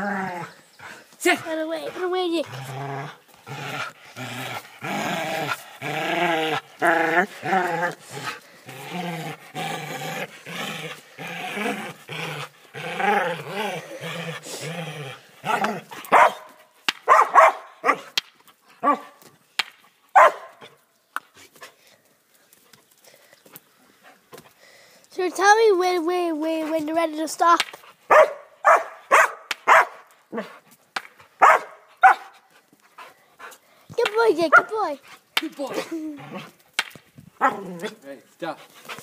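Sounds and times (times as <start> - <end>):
dog barking: 16.1 - 18.1, 18.8 - 19.2, 20.2 - 20.6, 28.1 - 30.5, 31.4 - 32.3, 34.5 - 34.7.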